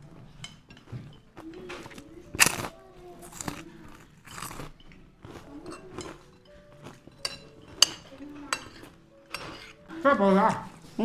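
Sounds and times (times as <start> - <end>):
person chewing crunchy food: 2.3 - 7.8.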